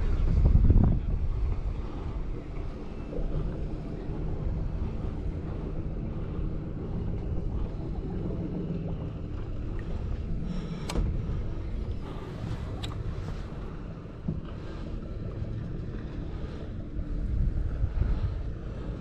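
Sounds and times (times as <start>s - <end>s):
boat engine running: 0.0s - 19.0s
wind on microphone: 0.0s - 19.0s.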